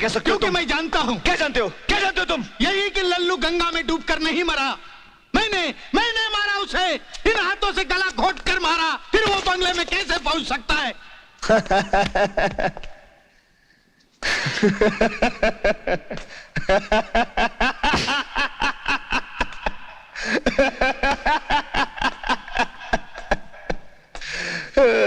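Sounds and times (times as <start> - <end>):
person laughing loudly: 11.4 - 13.0, 14.2 - 23.9.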